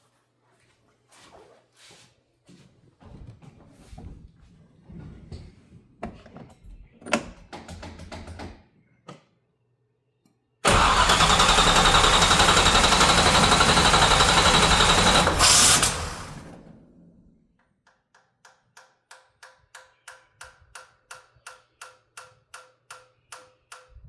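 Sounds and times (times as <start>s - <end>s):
engine cranking on starter: 10.6s - 17.0s.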